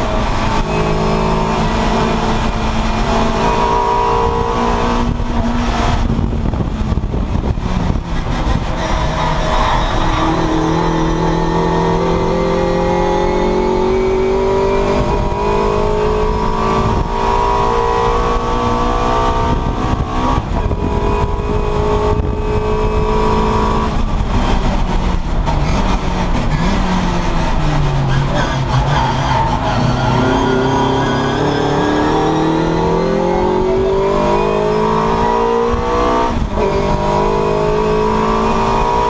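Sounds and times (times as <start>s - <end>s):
race car engine revving: 0.0s - 39.0s.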